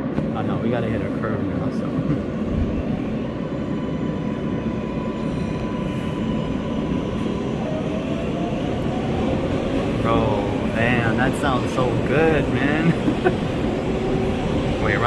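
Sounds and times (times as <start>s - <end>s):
subway car motor whining: 0.0s - 15.0s
wheels rumbling on track: 0.0s - 15.0s.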